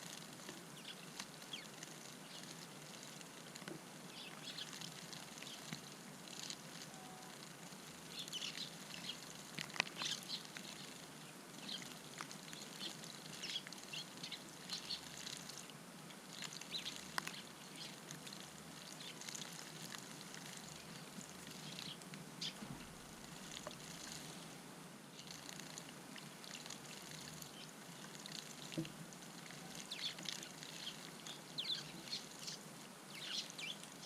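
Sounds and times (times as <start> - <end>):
sparrows chirping: 0.8 - 2.5, 4.1 - 4.8, 8.1 - 9.3, 10.0 - 11.0, 11.6 - 15.2, 16.5 - 18.0, 20.7 - 22.7, 29.6 - 34.0.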